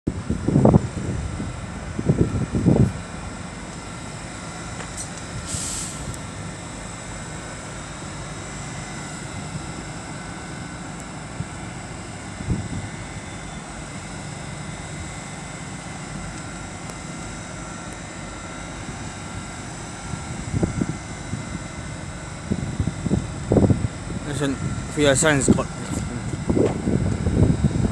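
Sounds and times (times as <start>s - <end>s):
train equipment humming: 0.1s - 27.9s
air hiss: 5.4s - 6.2s.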